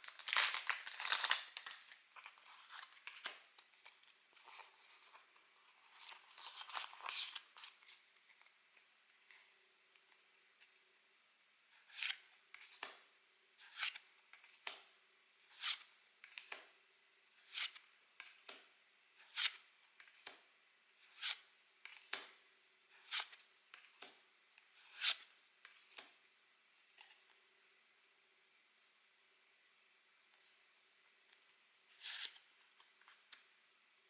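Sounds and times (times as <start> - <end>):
cards sliding with swish: 11.8 - 12.8, 13.6 - 14.8, 15.5 - 16.6, 17.4 - 18.6, 19.2 - 20.3, 21.0 - 22.2, 22.9 - 24.1, 24.8 - 25.3, 32.0 - 32.4.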